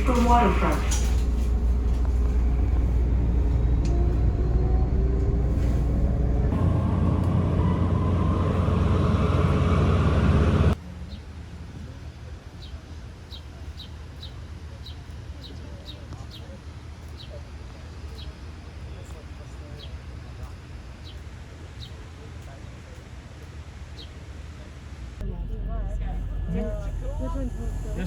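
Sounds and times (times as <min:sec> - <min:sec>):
train rumbling: 0:00.0 - 0:13.2, 0:25.2 - 0:28.0.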